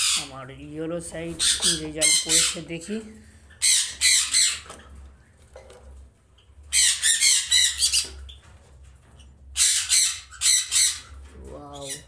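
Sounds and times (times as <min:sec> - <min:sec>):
parrots squawking: 0:00.0 - 0:00.4, 0:01.2 - 0:05.0, 0:06.6 - 0:08.5, 0:09.2 - 0:12.0.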